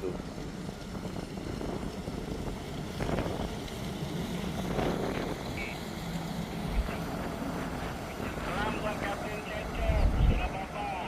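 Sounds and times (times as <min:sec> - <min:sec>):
boat engine rumble: 0:00.0 - 0:11.0
wind noise on microphone: 0:00.1 - 0:10.8.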